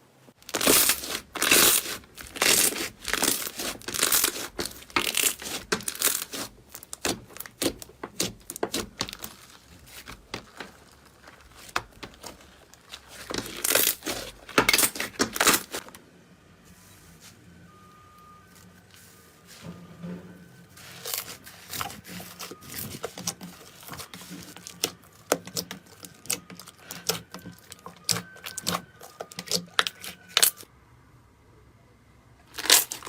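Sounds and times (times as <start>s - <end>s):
slime crackling: 0.4s - 16.0s, 20.8s - 30.7s, 32.5s - 33.0s.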